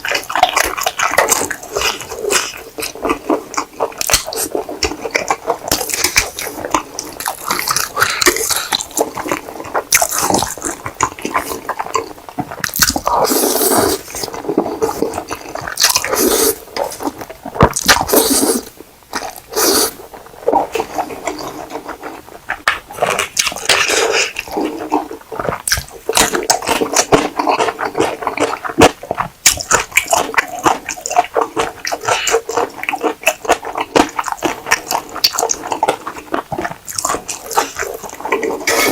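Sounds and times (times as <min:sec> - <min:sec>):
slurping and chewing noodles: 0:00.0 - 0:38.9.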